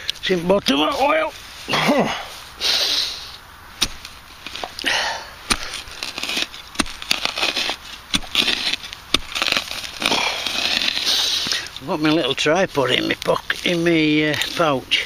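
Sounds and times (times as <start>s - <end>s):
gritty soil scrapes: 0.0s - 15.0s
digging clicks in soil: 3.8s - 14.8s.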